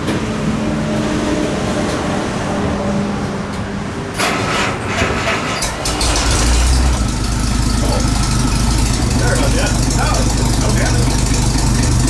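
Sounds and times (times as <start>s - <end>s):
car engine cranking and starting: 4.2s - 12.0s.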